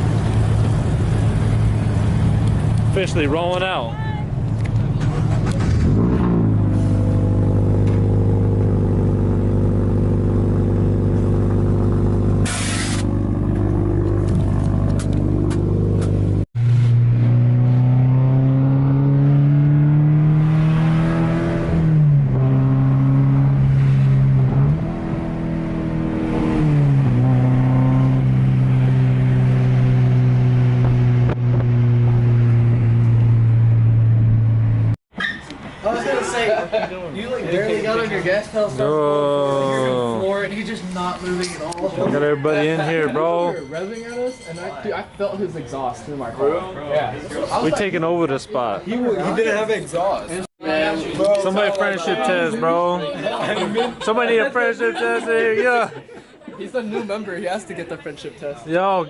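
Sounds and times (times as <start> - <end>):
car engine accelerating: 4.6 - 35.0.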